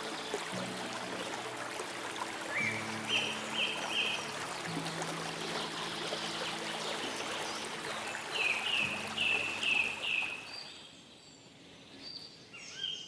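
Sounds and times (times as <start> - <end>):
low held background music: 0.0 - 10.2
water trickling: 0.0 - 10.7.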